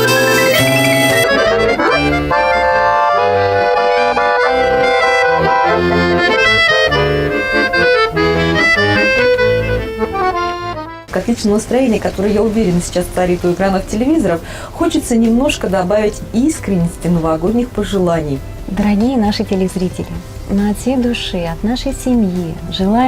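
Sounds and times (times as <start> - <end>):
accordion duet playing: 0.0 - 14.4.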